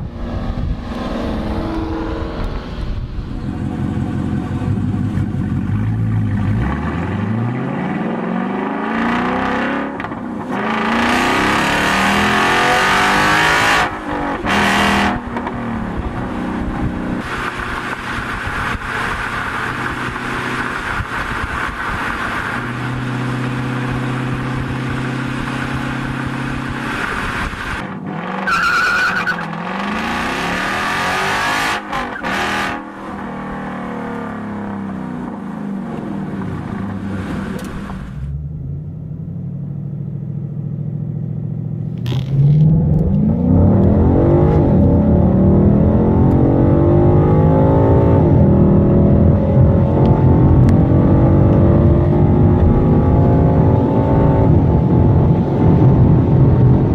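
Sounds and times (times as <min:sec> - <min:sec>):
car engine revving: 0:00.0 - 0:56.9
short high squeal: 0:28.4 - 0:29.5.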